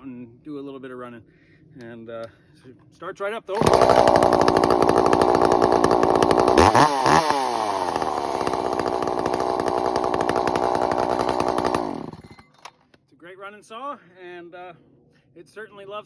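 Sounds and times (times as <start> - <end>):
chainsaw running at high revs: 3.6 - 12.4.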